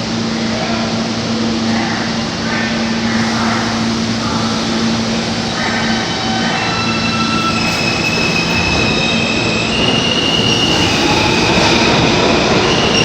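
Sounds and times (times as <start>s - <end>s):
subway train rumbling: 0.0s - 13.0s
wheel squeal: 6.0s - 13.0s.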